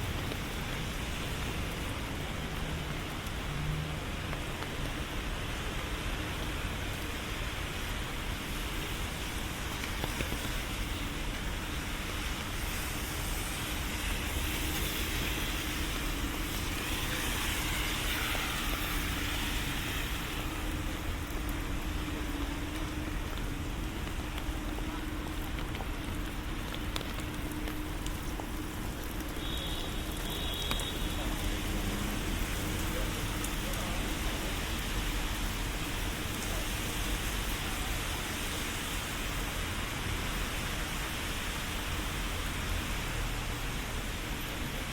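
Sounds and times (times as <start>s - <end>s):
city traffic on wet streets: 0.0s - 44.9s
steady rain: 0.0s - 44.9s
vehicle swishing past on wet road: 30.0s - 35.0s.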